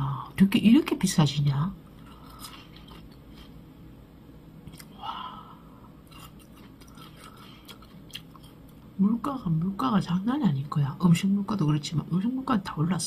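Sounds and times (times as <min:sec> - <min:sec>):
person chewing crisp pear: 0:01.9 - 0:03.6, 0:04.6 - 0:05.0, 0:05.9 - 0:08.9
wet mouth clicks: 0:04.7 - 0:05.0.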